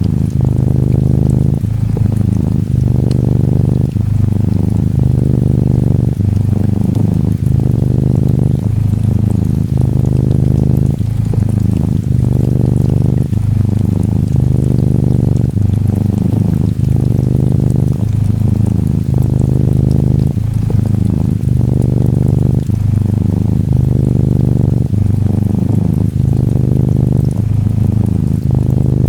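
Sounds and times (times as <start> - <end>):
gentle rain patter: 0.0 - 29.0
kitten purring: 0.0 - 29.0.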